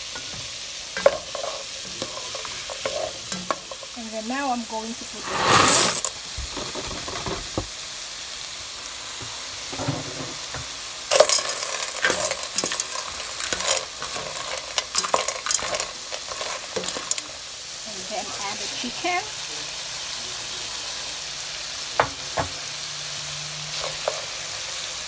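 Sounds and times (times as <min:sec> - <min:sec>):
spatula stirring pasta in pot: 0:00.0 - 0:06.1, 0:11.1 - 0:19.1, 0:23.7 - 0:24.7
vegetables sizzling in butter: 0:00.0 - 0:25.0.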